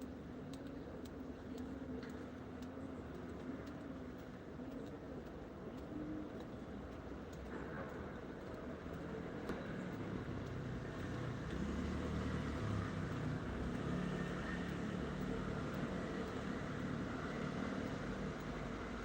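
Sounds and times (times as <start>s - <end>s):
road noise: 7.0s - 19.0s.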